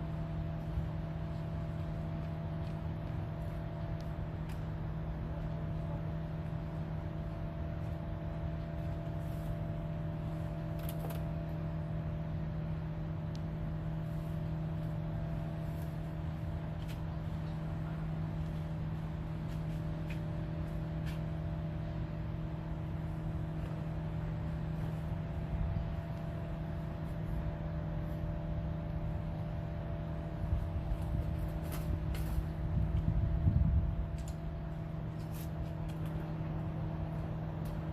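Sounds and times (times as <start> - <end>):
engine running steadily: 0.0 - 37.9.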